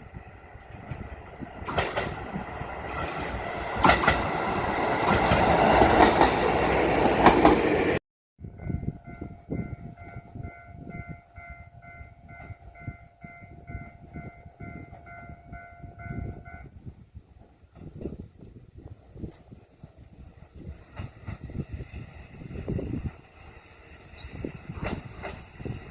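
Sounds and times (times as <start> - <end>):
diesel railcar running: 0.0 - 25.9
wheels clicking over rail joints: 0.6 - 7.7, 22.6 - 25.9.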